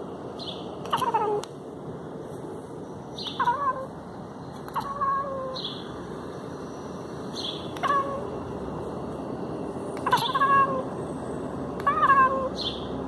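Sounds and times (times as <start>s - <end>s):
steady background hiss: 0.0s - 13.0s
pet animal calls: 0.8s - 1.5s, 3.2s - 4.0s, 4.6s - 5.9s, 7.4s - 8.4s, 10.0s - 11.0s, 11.8s - 12.9s.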